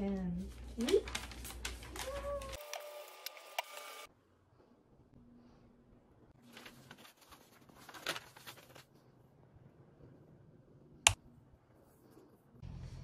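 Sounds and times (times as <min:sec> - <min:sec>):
paper rustling: 0:00.0 - 0:03.2, 0:06.4 - 0:09.1.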